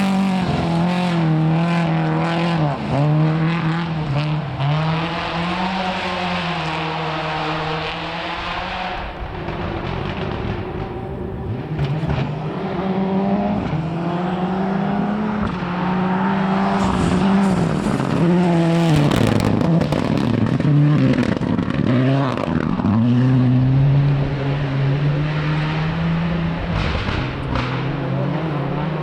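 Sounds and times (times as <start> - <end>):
rally car engine revving: 0.0 - 29.0
engine crackles: 9.0 - 22.8.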